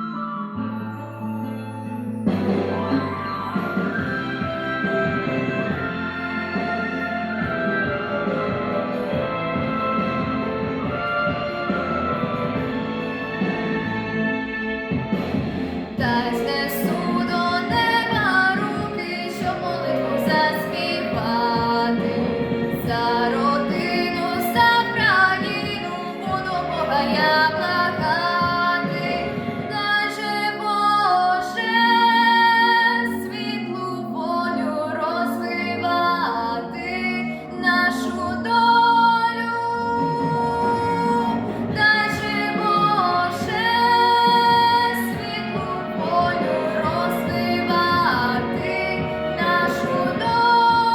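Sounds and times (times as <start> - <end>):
backing track music: 0.0 - 50.9
girl singing: 16.0 - 50.9.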